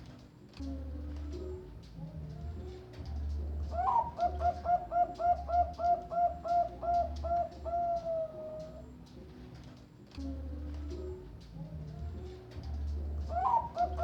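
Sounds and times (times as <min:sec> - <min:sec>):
dove cooing: 0:02.6 - 0:09.0, 0:12.2 - 0:14.0.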